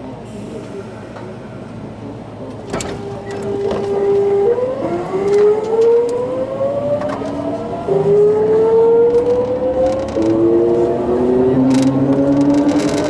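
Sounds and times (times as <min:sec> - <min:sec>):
rumble of running train: 0:00.0 - 0:13.0
train inverter whine rising in pitch: 0:03.5 - 0:13.0.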